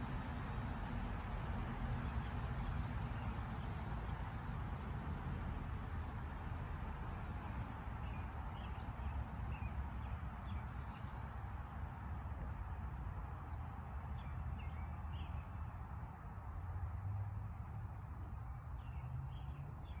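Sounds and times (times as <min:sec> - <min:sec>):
small birds chirping: 0:13.6 - 0:15.7.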